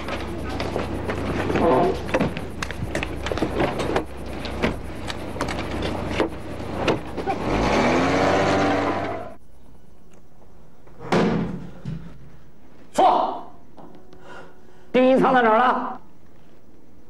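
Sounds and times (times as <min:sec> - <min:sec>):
car engine idling and revving: 0:00.5 - 0:09.4.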